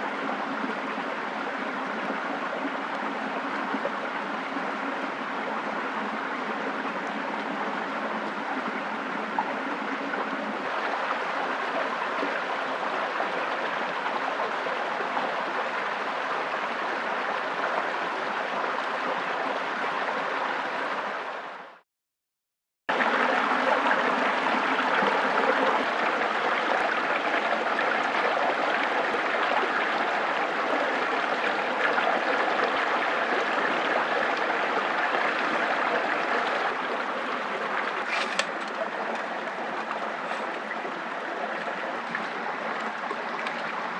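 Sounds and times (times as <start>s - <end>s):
running water rushing: 22.9s - 43.9s.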